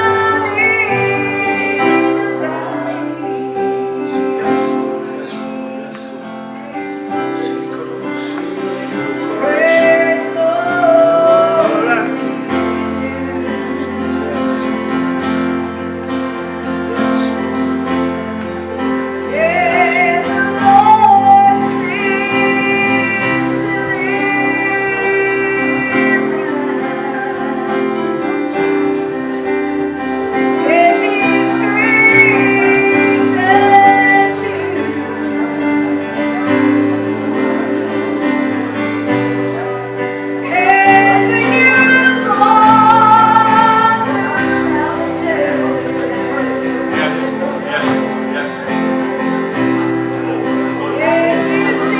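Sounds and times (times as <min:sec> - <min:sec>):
woman singing: 0:00.0 - 0:06.4, 0:07.4 - 0:15.0, 0:19.1 - 0:29.3, 0:30.4 - 0:39.2, 0:40.4 - 0:47.5, 0:50.8 - 0:51.9
sustained instrumental chords: 0:00.0 - 0:51.9.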